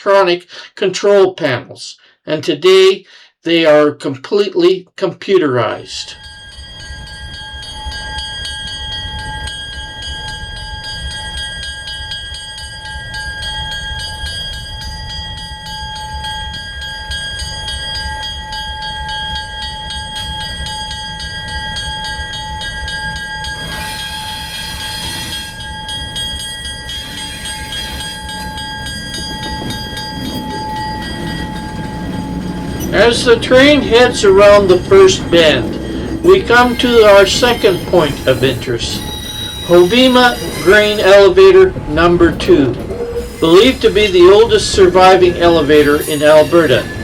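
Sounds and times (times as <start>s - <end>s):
constant high tones: 6.1s - 47.0s
rail car rumbling on track: 6.1s - 47.0s.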